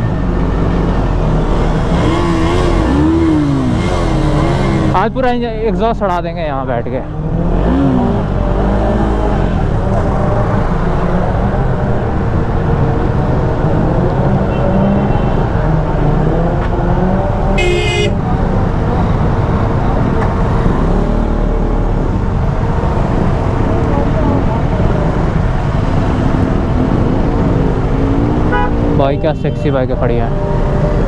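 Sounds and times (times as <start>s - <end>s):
motorcycle engines revving: 0.0s - 31.0s
short horn toot: 17.6s - 18.2s, 28.5s - 28.8s.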